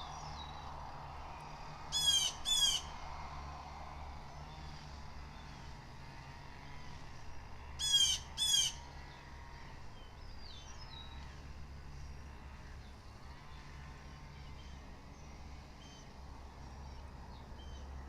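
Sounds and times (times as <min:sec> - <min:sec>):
blue jay harsh calls: 0:01.9 - 0:02.9, 0:07.8 - 0:08.8.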